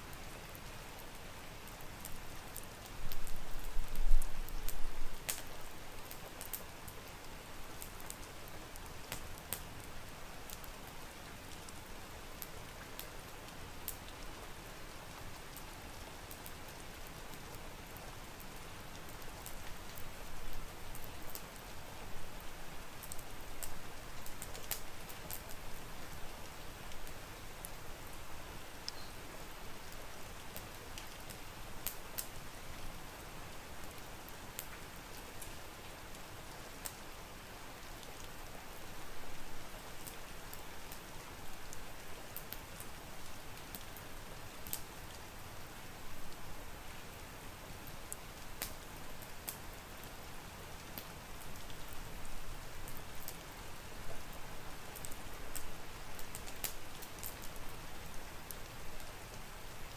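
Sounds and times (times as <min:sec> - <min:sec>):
steady rain: 0:00.0 - 0:59.9
wood fire crackling and popping: 0:01.0 - 0:07.2, 0:07.8 - 0:09.8, 0:10.4 - 0:13.2, 0:13.9 - 0:14.2, 0:16.2 - 0:21.7, 0:22.9 - 0:26.3, 0:30.4 - 0:32.4, 0:33.9 - 0:35.6, 0:36.8 - 0:37.1, 0:41.7 - 0:45.3, 0:48.1 - 0:50.2, 0:52.8 - 0:59.5.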